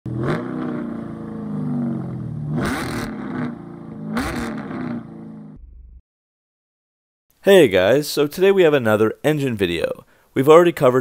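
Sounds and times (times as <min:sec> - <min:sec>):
car engine revving: 0:00.1 - 0:05.7.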